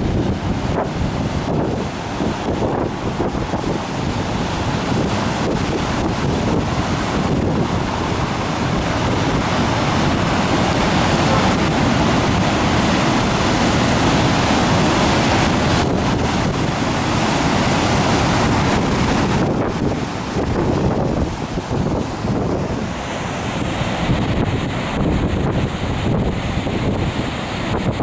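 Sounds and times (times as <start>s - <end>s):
surf pounding on shore: 0.0s - 28.0s
wind buffeting microphone: 0.0s - 28.0s.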